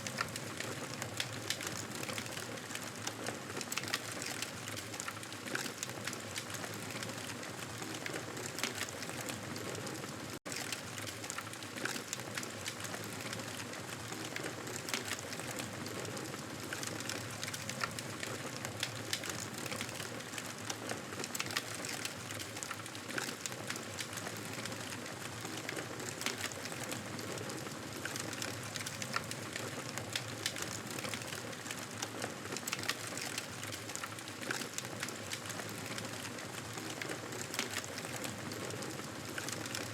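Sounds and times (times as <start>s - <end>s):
campfire crackling: 10.5s - 39.9s.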